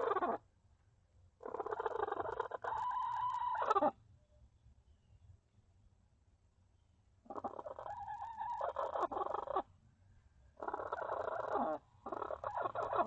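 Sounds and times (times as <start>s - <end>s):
hen squawking and clucking: 0.0s - 0.4s, 1.4s - 4.0s, 7.2s - 9.7s, 10.6s - 13.0s.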